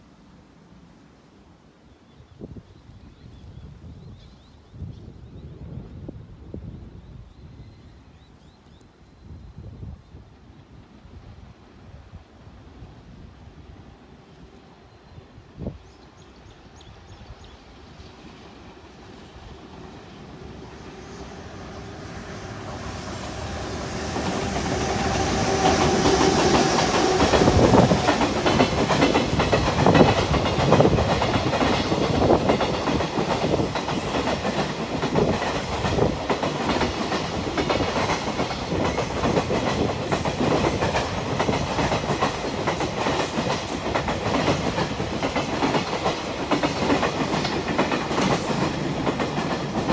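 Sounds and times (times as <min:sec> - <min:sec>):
freight train rumbling: 0:12.2 - 0:49.9
train humming tone: 0:13.6 - 0:49.9
wheels clacking over rail joints: 0:24.1 - 0:49.9.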